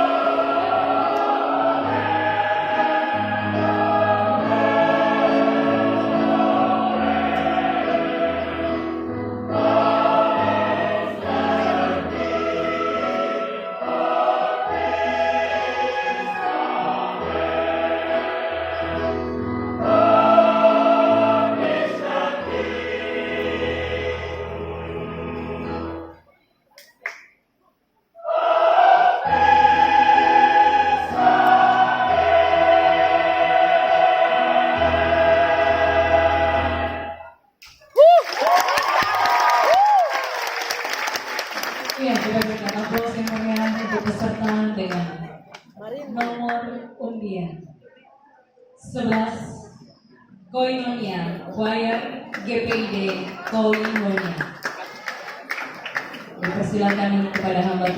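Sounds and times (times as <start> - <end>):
choir singing: 0.0 - 26.2, 28.2 - 37.5.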